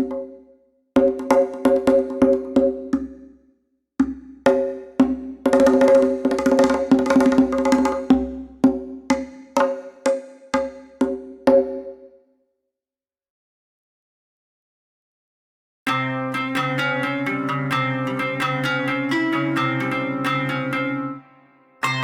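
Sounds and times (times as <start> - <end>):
pitched percussion strokes ringing: 21.8 - 22.0.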